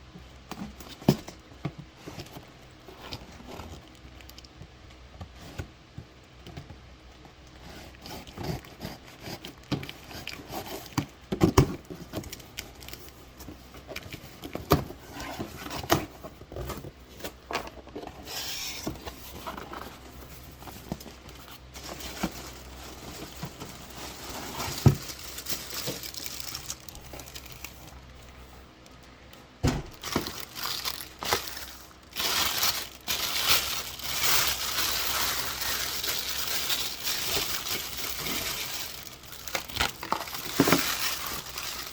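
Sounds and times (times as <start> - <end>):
packaging crinkling: 11.8 - 28.5, 29.9 - 41.9
knocks and thumps: 29.6 - 30.3.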